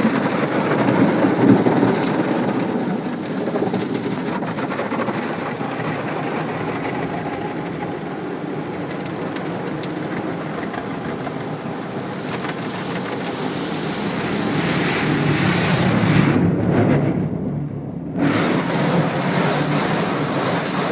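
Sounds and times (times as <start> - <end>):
car wash water spray: 7.0 - 16.2, 18.2 - 20.9.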